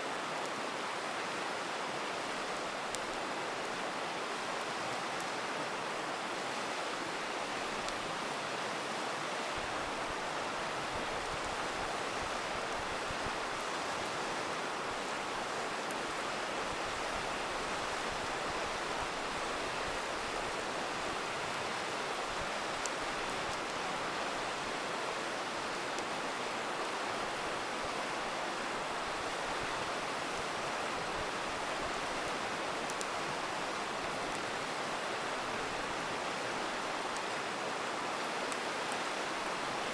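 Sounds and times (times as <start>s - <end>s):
river rushing: 0.0s - 39.9s
campfire crackles: 0.1s - 39.9s.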